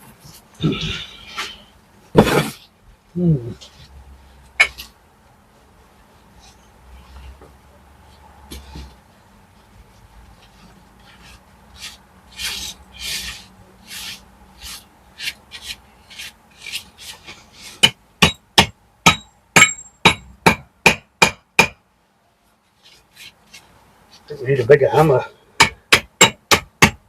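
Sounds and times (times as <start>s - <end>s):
tool scraping brickwork: 1.4s - 2.6s, 11.0s - 18.0s.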